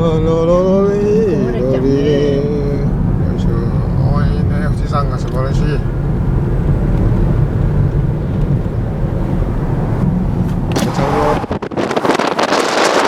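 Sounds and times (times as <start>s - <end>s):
car engine and tyres rumbling: 0.0s - 13.0s
wind hiss on microphone: 10.8s - 13.0s.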